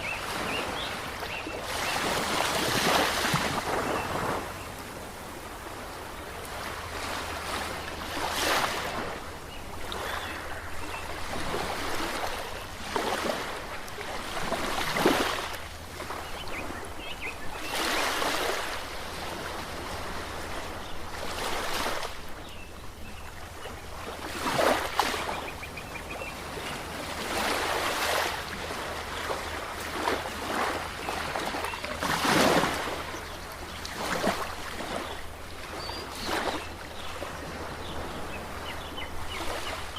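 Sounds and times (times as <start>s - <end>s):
ocean waves washing in: 0.0s - 16.2s.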